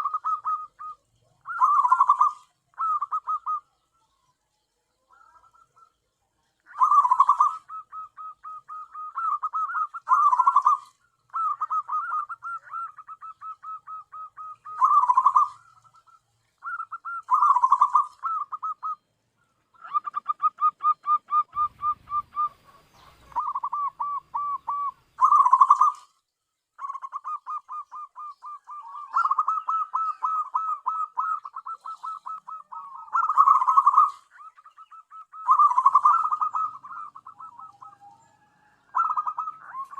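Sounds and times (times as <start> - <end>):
dove cooing: 0.0 - 4.2, 5.0 - 26.2, 26.8 - 39.9.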